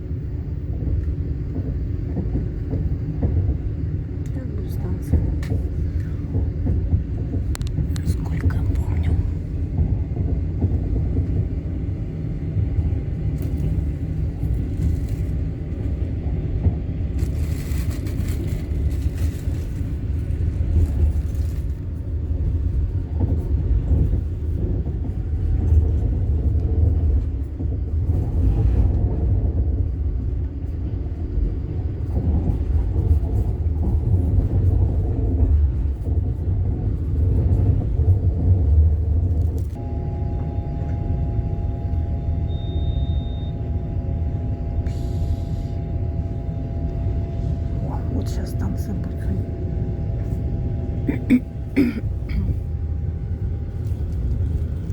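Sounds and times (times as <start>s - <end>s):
train rumbling inside carriage: 0.0s - 54.9s.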